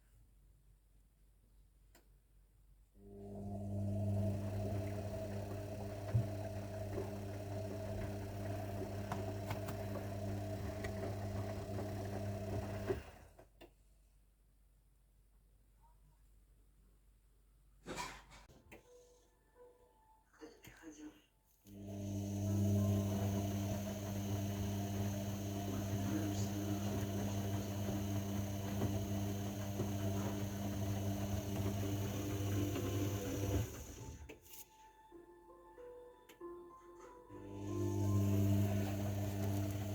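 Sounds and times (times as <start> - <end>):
washing machine humming: 3.1 - 13.4, 21.8 - 34.4, 37.3 - 39.9.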